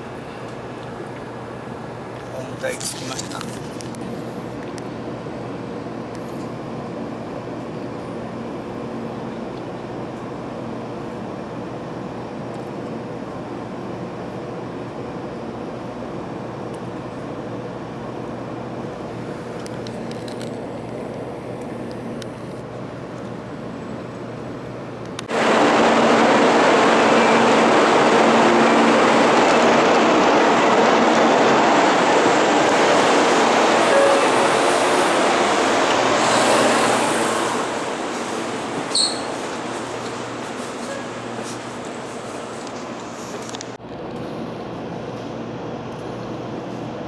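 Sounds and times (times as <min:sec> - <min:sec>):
loud rushing train noise: 0:24.2 - 0:43.8
train cabin hum: 0:24.9 - 0:43.8.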